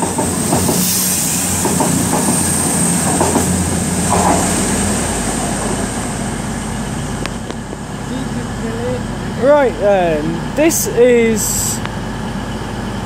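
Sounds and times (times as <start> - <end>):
diesel train engine hum: 0.0 - 13.0.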